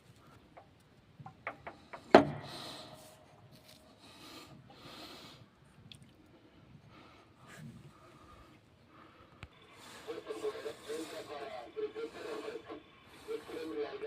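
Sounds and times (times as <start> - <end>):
soft rubbing and scraping: 2.5 - 4.6.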